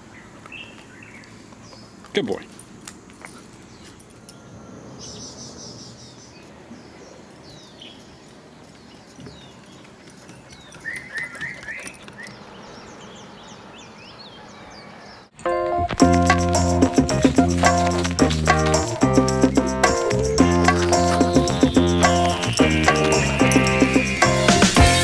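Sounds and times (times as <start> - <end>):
faint background noise: 0.0 - 15.4
wild birds chirping: 0.0 - 15.4, 16.2 - 25.0.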